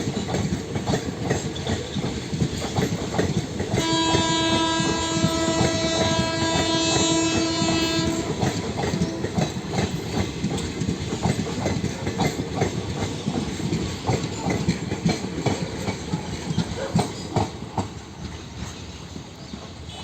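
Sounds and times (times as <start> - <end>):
train wheels clattering over rail joints: 0.0 - 20.0
locomotive horn: 3.7 - 9.6.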